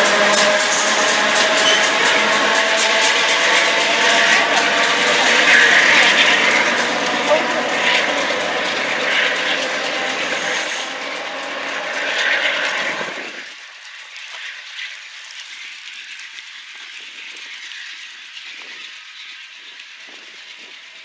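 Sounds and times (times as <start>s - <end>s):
wheel clicks over rails: 0.0s - 13.6s
train rumble: 0.0s - 14.0s.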